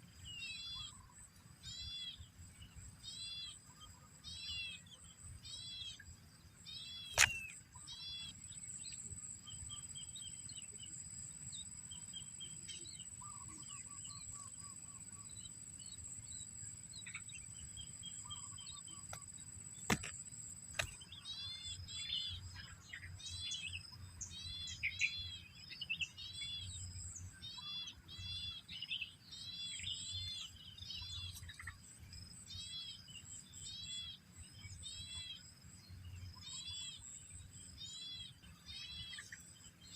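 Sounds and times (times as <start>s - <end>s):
small birds chirping: 0.0s - 39.9s
sharp click: 7.1s - 7.6s, 19.9s - 21.0s.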